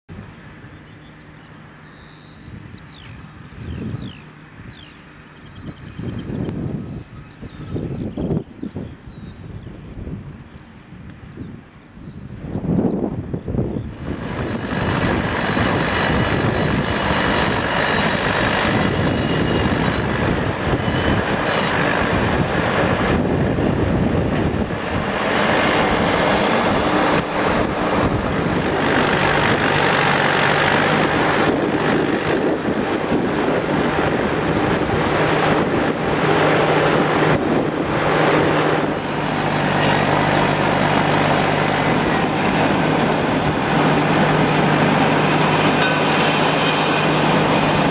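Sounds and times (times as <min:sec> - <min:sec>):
circular sawmill blade running: 0:13.9 - 0:47.9.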